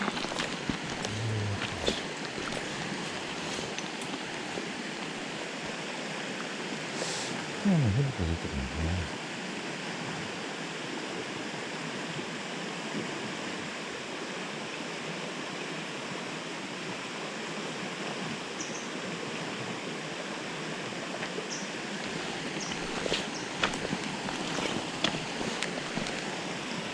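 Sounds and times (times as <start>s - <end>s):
river water rushing: 0.0s - 7.6s, 21.7s - 26.9s.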